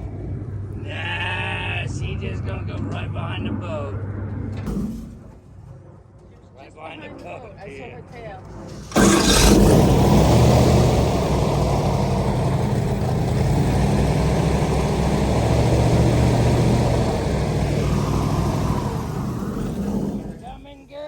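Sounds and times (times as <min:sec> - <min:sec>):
boat engine running: 0:08.5 - 0:21.0.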